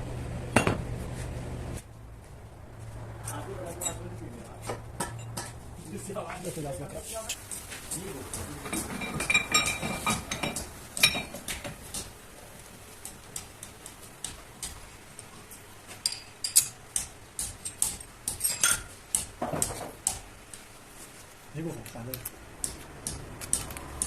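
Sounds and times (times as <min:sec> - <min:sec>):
metal objects clinking: 0:07.5 - 0:11.6, 0:16.0 - 0:16.8, 0:17.6 - 0:18.9.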